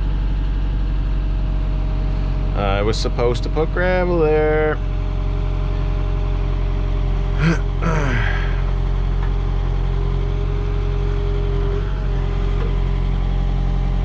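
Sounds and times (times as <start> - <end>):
backhoe diesel engine running: 0.0 - 14.0.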